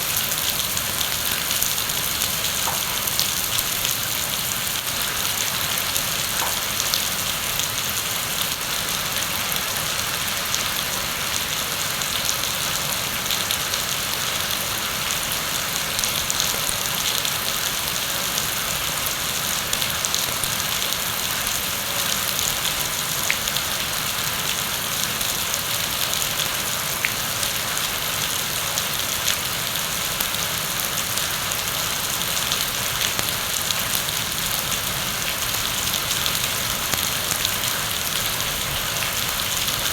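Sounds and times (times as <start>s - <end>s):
raindrops ticking: 0.0s - 7.4s, 32.5s - 39.9s
heavy rain pouring: 0.0s - 39.9s.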